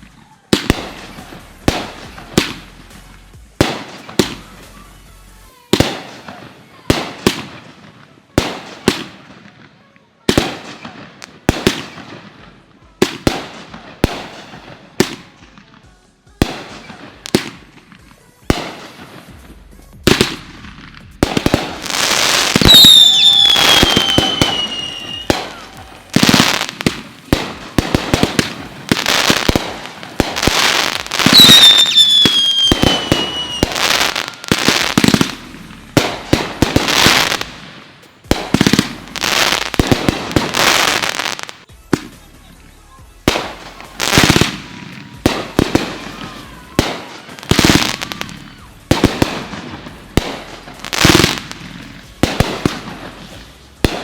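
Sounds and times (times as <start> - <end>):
fireworks bursting with bangs: 0.0 - 54.0
whistling firework shrieking: 21.9 - 26.7, 30.4 - 35.1.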